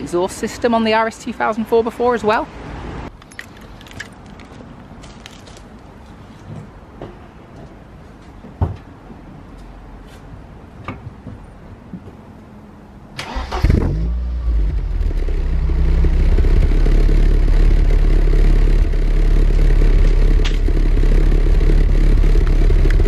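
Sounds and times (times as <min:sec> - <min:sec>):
car engine starting and idling: 0:13.1 - 0:23.0.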